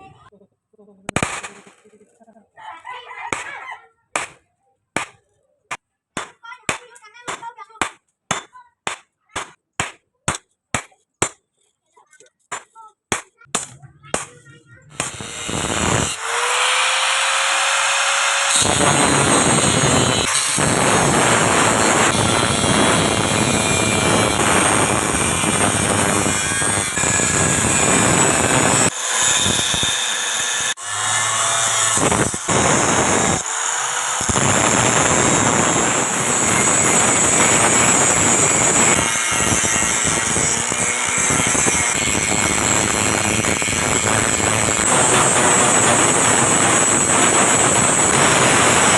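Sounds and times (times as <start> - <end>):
power tool grinding steel: 14.4 - 48.9
motor whine spinning up: 14.9 - 48.9.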